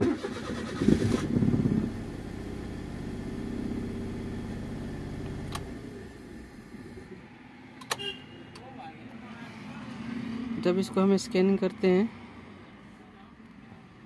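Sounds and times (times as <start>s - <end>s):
car engine cranking by starter: 0.0s - 7.2s.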